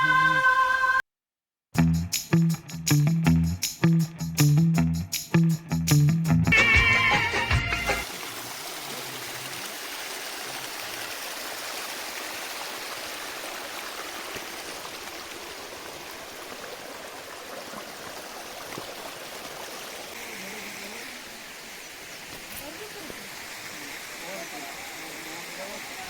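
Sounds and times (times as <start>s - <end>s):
backing music track: 1.8s - 8.1s
waterfall rushing: 8.0s - 26.0s.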